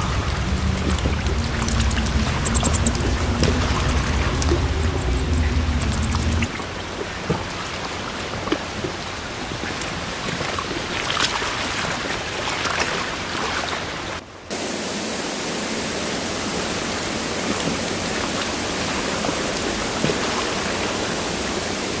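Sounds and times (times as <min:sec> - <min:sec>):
low rumble: 0:00.0 - 0:06.8
flowing stream water: 0:00.0 - 0:22.0.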